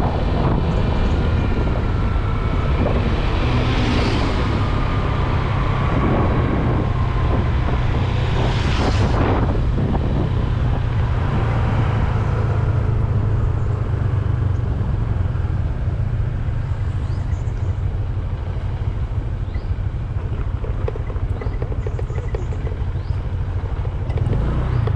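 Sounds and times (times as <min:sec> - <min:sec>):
wind on microphone: 0:00.0 - 0:16.2
scooter engine rumble: 0:00.0 - 0:24.9.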